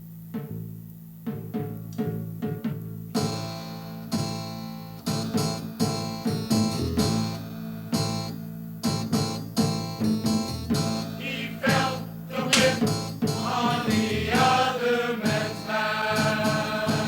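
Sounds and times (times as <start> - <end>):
acoustic guitar instrumental: 8.9 - 17.0.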